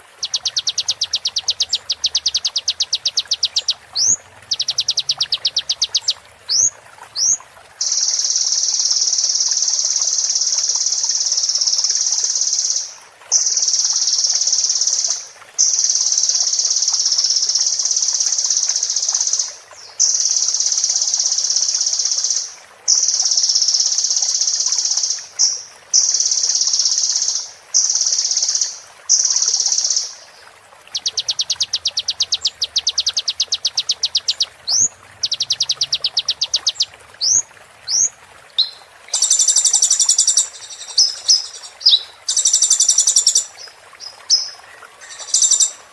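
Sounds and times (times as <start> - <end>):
sunbird song with high trills: 38.0 - 43.6, 44.3 - 45.9.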